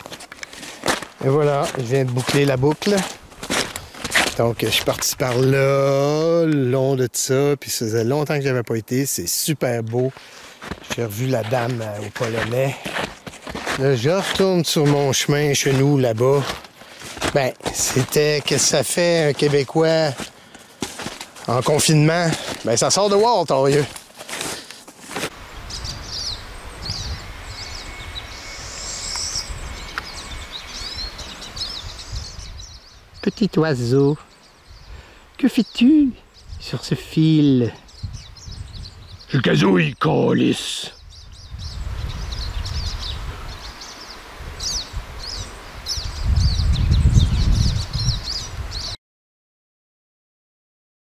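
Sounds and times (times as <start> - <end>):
small songbird chirping: 25.5 - 49.0.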